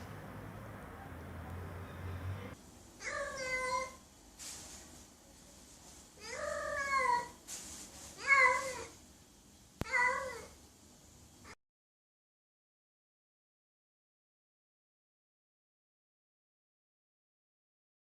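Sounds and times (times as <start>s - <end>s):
cat meowing: 3.0s - 4.0s, 6.2s - 7.4s, 8.2s - 9.0s, 9.8s - 10.6s.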